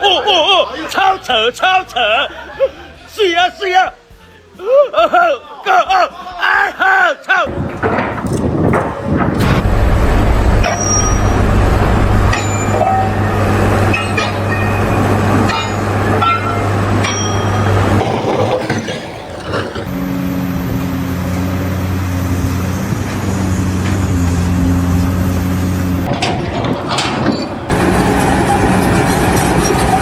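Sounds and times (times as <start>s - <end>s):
clanks and squeaks: 7.5s - 30.0s
machinery humming: 7.5s - 30.0s
higher-toned machine hum: 9.4s - 18.0s.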